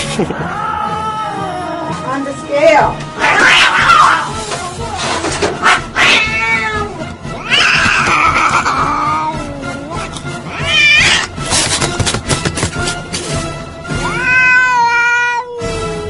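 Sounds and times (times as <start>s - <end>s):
cat yowling: 3.2s - 4.4s, 5.6s - 11.4s, 14.0s - 16.0s.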